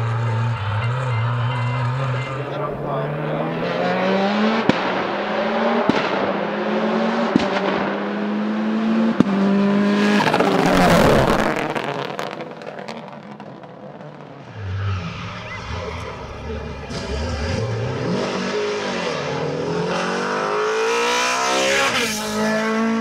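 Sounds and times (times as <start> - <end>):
another car engine: 0.0 - 23.0
race car accelerating: 0.0 - 23.0
gear change crack: 4.6 - 6.5.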